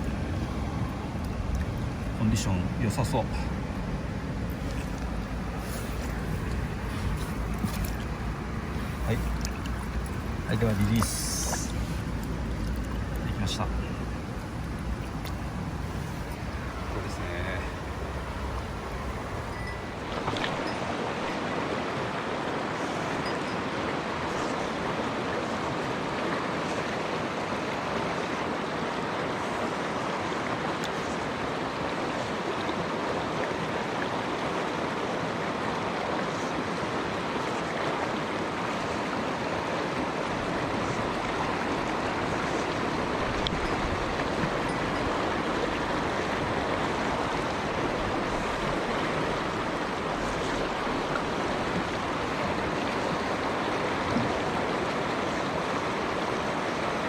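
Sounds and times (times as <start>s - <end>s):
stream water rushing over rocks: 0.0s - 57.0s.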